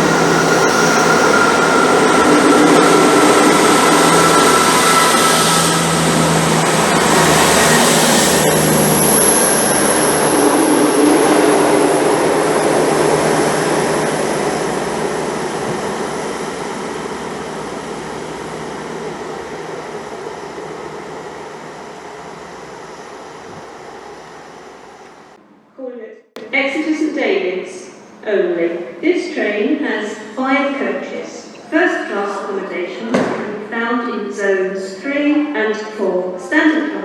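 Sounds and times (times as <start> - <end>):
diesel train moving away: 0.0 - 25.4
thin high whine: 0.0 - 25.4.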